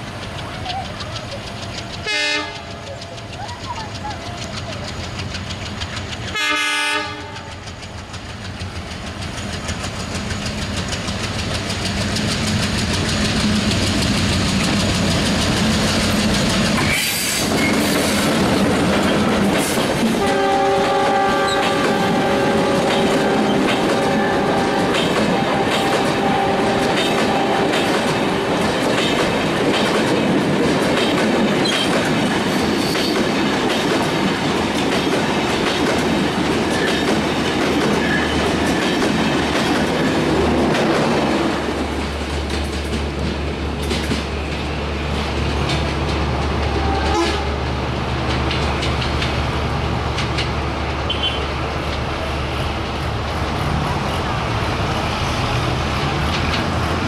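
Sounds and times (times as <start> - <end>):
train rumble and clickety-clack: 0.0 - 57.0
train horn: 2.0 - 2.8, 6.3 - 7.7, 20.2 - 28.5, 46.6 - 47.7.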